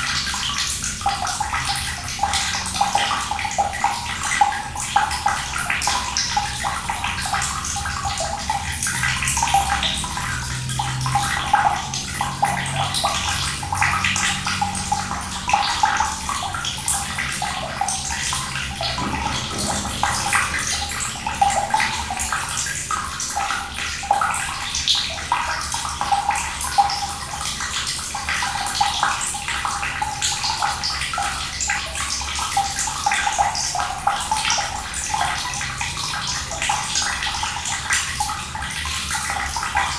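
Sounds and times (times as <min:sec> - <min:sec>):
water running and splashing: 0:00.0 - 0:39.9.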